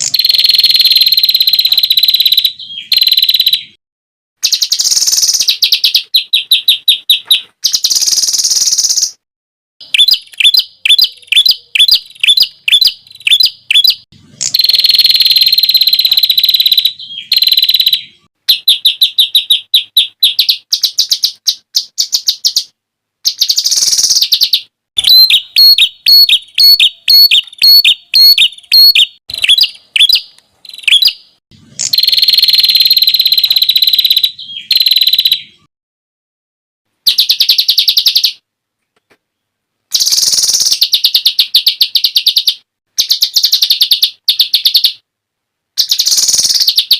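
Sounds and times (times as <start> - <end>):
songbird whistled notes: 9.8 - 22.7, 23.3 - 35.7
buzzy bird trills: 45.8 - 46.9.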